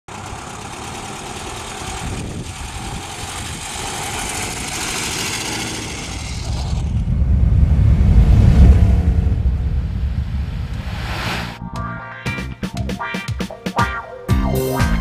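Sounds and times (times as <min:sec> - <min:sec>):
car engine running at low speed: 0:00.1 - 0:10.8
low rumble: 0:05.9 - 0:12.0.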